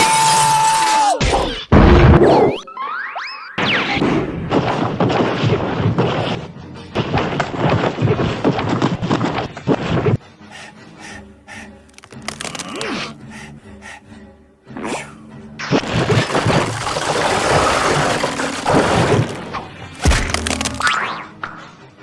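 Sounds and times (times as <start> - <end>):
background music: 10.2 - 22.0
cartoon fight thuds and hits: 20.0 - 21.0.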